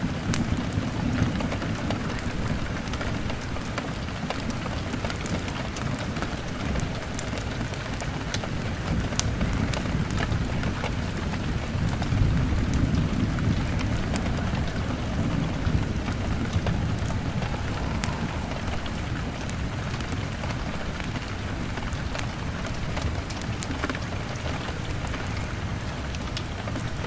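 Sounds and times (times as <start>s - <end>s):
rain pattering on window glass: 0.0s - 27.0s
wood fire crackling: 0.0s - 27.0s
deep low rumble: 10.5s - 21.7s.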